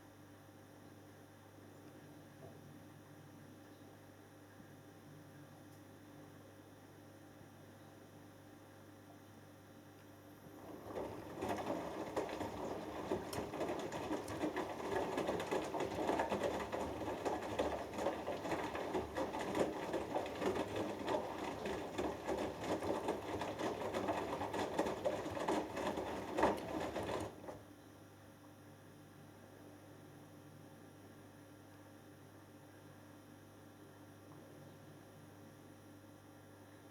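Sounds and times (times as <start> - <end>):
washing machine low hum: 6.4 - 30.0
washing machine drum churning: 10.5 - 27.6.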